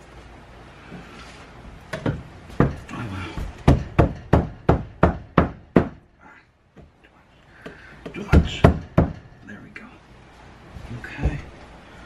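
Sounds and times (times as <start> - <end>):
wood being struck: 1.9 - 6.1, 7.6 - 9.4.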